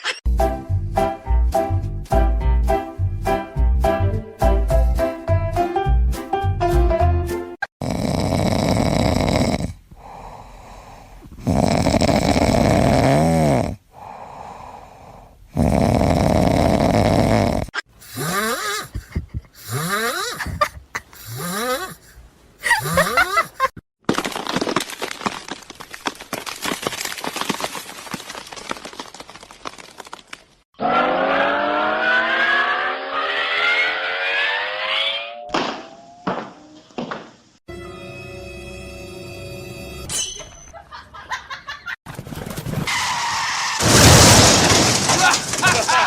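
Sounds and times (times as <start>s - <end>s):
pet snoring: 7.8s - 9.8s, 11.4s - 13.8s, 15.5s - 18.9s.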